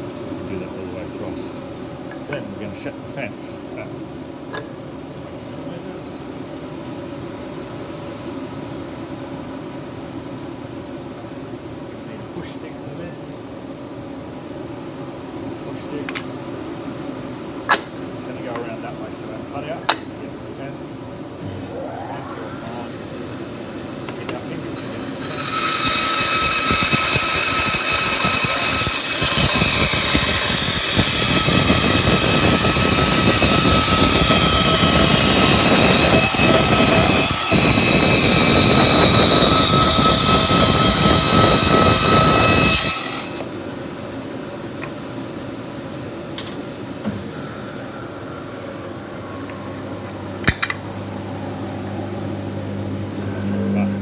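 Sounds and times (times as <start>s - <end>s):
bandsaw cutting wood: 21.4s - 43.7s.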